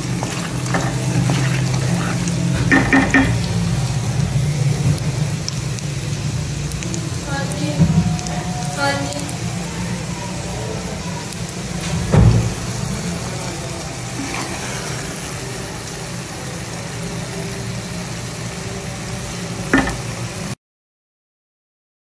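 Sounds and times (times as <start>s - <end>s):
wooden spatula stirring curry: 0.0s - 3.5s
cutlets sizzling in oil: 0.0s - 20.6s
knock: 19.8s - 20.0s.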